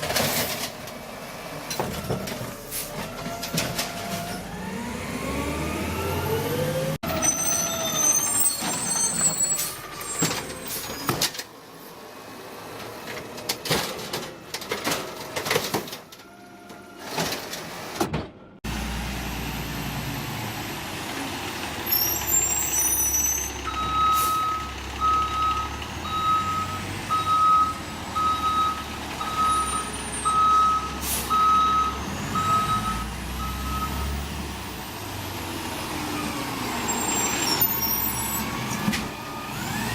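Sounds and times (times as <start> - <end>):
garbage truck engine: 0.0 - 39.9
brief high squeal: 7.2 - 11.1
reversing alarm beeping: 23.6 - 34.2.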